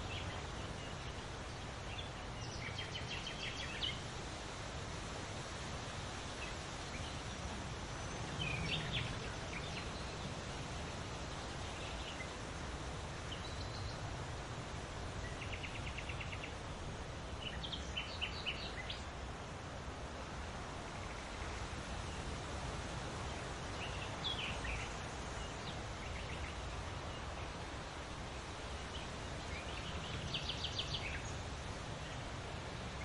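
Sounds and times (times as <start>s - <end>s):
small birds chirping: 0.0s - 4.3s, 6.3s - 14.1s, 15.1s - 16.7s, 17.3s - 19.3s, 23.2s - 33.0s
background hiss: 0.0s - 33.0s.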